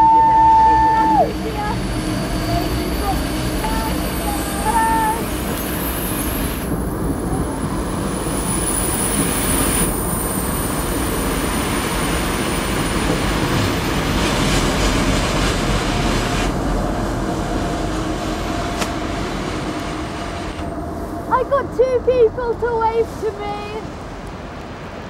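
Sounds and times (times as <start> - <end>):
faint steady whine: 0.0 - 11.6
train wheels rolling on rails: 0.0 - 25.0.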